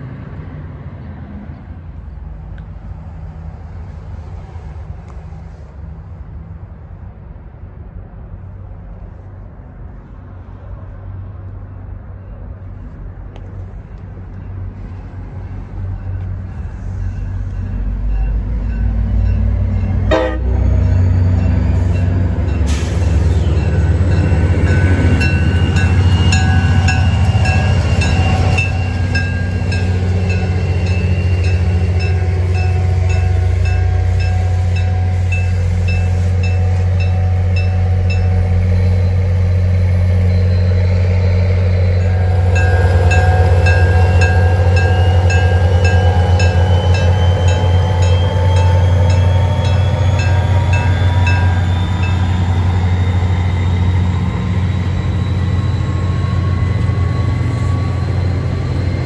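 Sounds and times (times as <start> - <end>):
diesel locomotive engine rumble: 0.0 - 59.0
train horn: 20.0 - 20.9, 25.5 - 38.7, 41.7 - 53.2
repeating warning bell: 23.6 - 39.2, 41.9 - 59.0.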